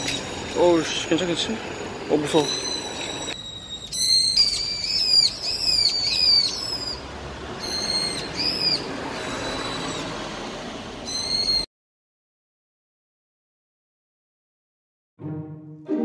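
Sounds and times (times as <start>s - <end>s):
bird alarm calls: 0.0s - 7.0s, 7.6s - 10.4s, 11.0s - 11.7s.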